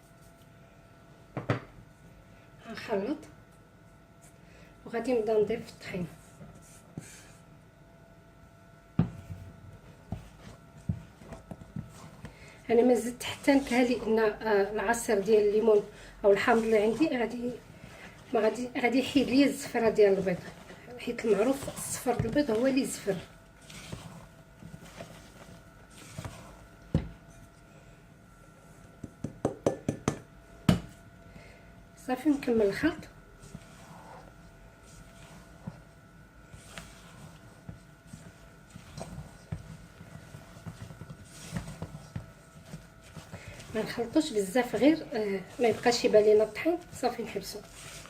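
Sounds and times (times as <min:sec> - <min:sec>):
utensil knocking on mixing bowl: 0:29.0 - 0:30.9.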